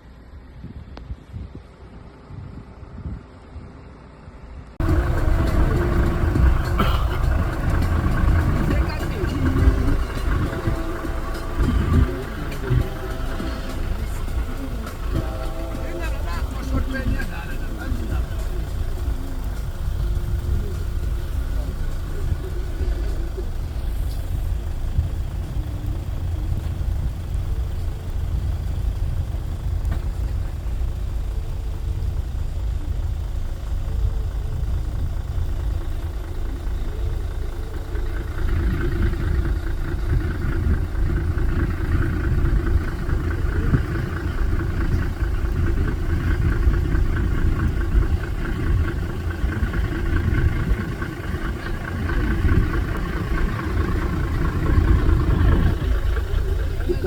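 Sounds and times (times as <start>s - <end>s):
engine idling: 0.0s - 57.0s
higher engine drone: 1.8s - 57.0s.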